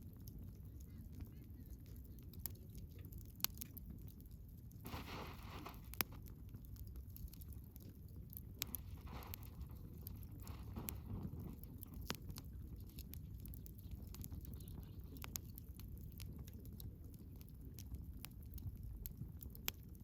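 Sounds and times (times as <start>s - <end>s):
fire crackles and pops: 0.0s - 20.0s
low rumble of fire: 0.0s - 20.0s.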